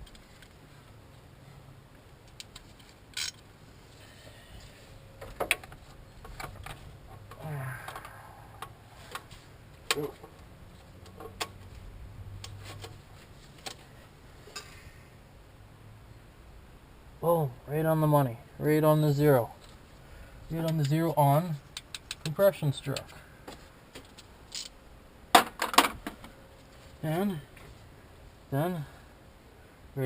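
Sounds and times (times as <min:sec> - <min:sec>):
hand tools clicking and clanking: 0:05.2 - 0:11.6, 0:21.6 - 0:23.2, 0:24.0 - 0:24.8.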